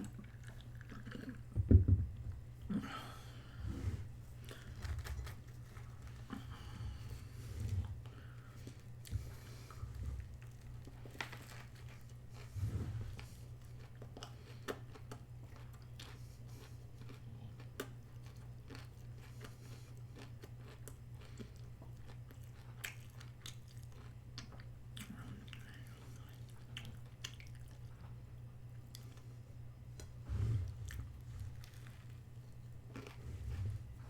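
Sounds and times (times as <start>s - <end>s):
person chewing food: 0.0s - 1.6s, 2.5s - 34.0s
low hum: 29.7s - 34.0s.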